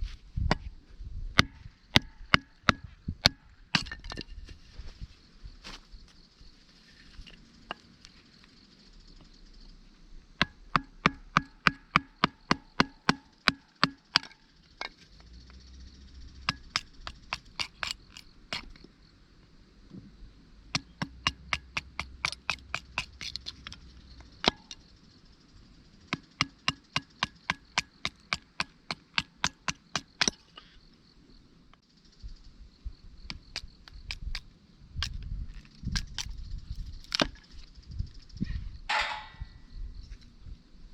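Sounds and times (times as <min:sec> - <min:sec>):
hand axe chopping wood: 0:01.4 - 0:04.2, 0:20.8 - 0:23.8, 0:37.0 - 0:37.4.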